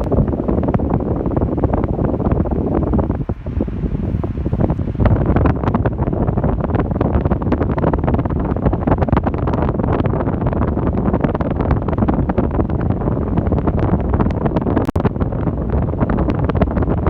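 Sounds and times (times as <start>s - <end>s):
fan wind noise on microphone: 0.0s - 17.0s.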